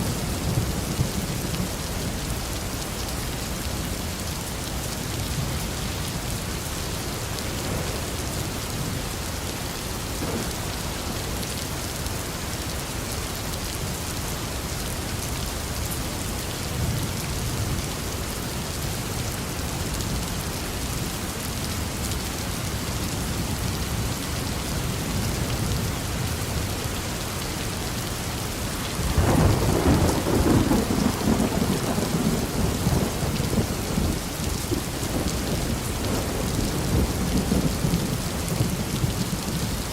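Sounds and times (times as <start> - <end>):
steady rain falling: 0.0 - 39.9
thunder rumbling: 29.0 - 39.8.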